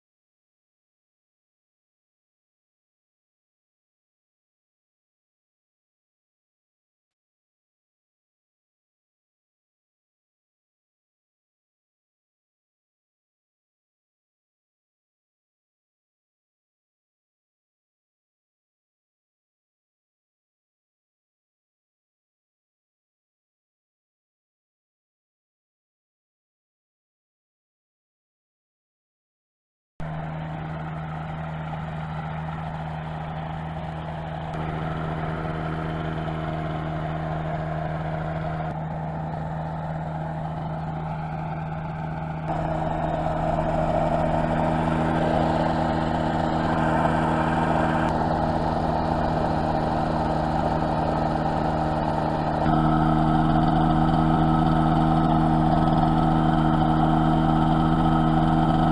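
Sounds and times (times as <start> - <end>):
gyroplane engine running: 30.0 - 58.9.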